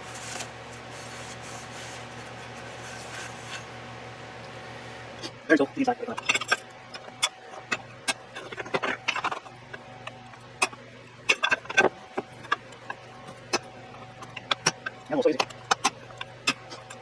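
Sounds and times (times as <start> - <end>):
faint steady hum: 0.0 - 17.0
metal parts and tools clinking: 6.0 - 17.0.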